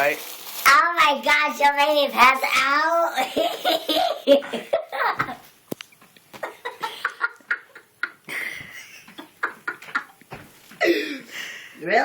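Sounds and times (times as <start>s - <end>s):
people laughing and giggling: 3.2s - 5.4s, 6.4s - 10.2s.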